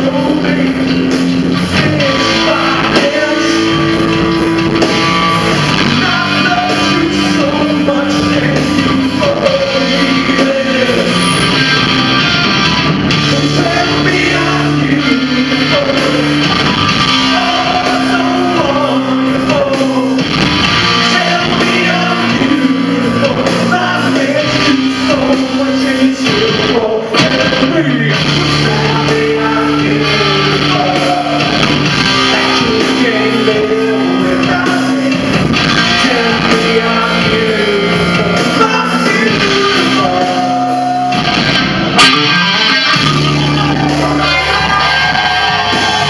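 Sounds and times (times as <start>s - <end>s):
live rock band playing: 0.0s - 46.0s
person singing: 5.6s - 12.6s, 13.2s - 41.2s.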